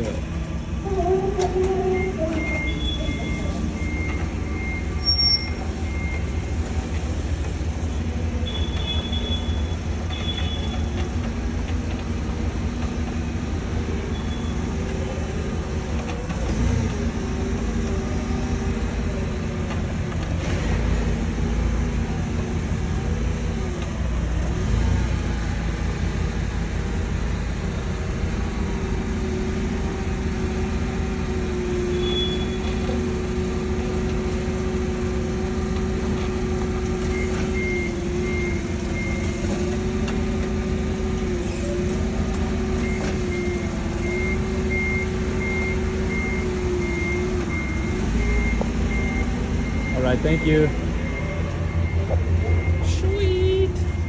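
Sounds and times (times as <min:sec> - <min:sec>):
vehicle engine running: 0:00.0 - 0:54.0
short high beeps: 0:01.9 - 0:06.3.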